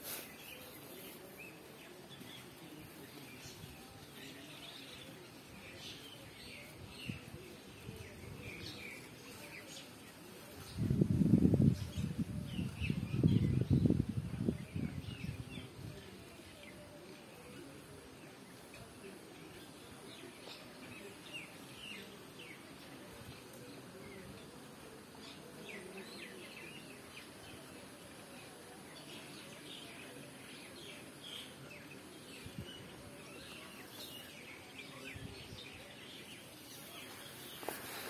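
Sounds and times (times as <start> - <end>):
birds chirping: 23.7 - 38.0.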